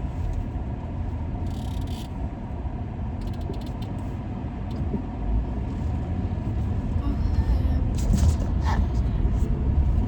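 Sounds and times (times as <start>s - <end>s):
road and engine rumble in car: 0.0s - 10.0s
light clicks and creaks: 1.5s - 2.2s, 3.2s - 4.1s.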